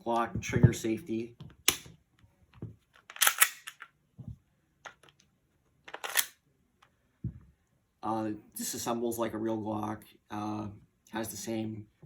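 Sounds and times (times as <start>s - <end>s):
pistol mechanism clicks and clacks: 2.9s - 4.0s, 5.8s - 6.4s.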